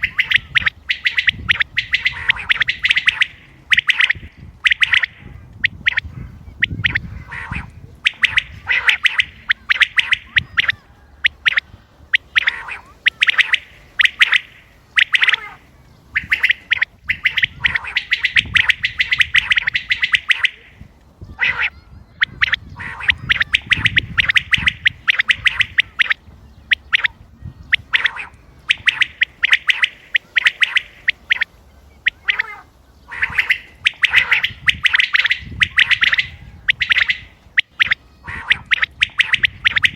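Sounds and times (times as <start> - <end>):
quail calling: 0.0 - 39.9.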